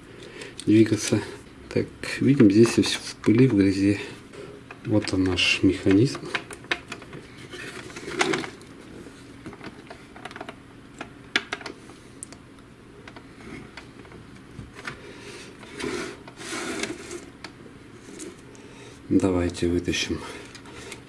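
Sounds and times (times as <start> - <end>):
scraping: 14.8 - 18.9.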